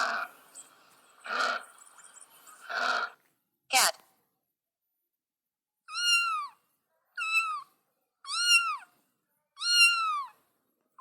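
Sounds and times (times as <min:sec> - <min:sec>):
cat meowing: 0:05.9 - 0:06.6, 0:08.3 - 0:08.8, 0:09.6 - 0:10.3.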